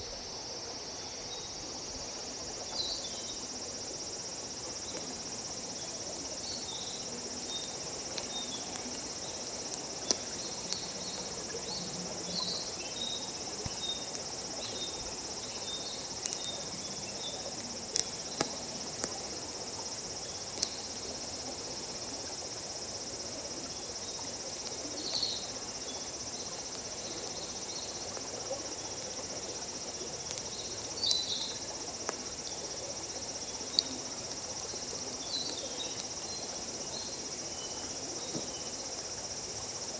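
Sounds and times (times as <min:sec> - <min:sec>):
crickets trilling: 0:00.0 - 0:39.9
campfire crackling and popping: 0:08.0 - 0:11.6, 0:17.8 - 0:19.3, 0:20.5 - 0:20.8.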